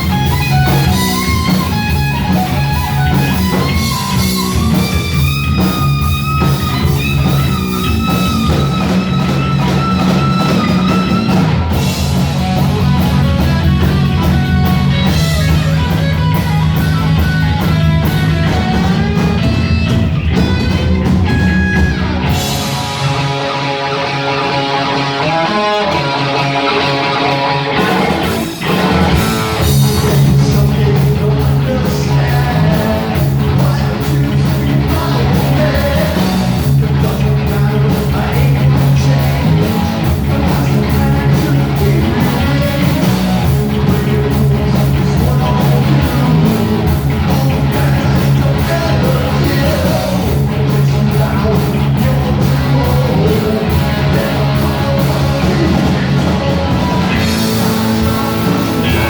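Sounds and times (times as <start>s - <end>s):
heavy metal band playing live: 0.0s - 59.0s
person singing: 24.8s - 59.0s.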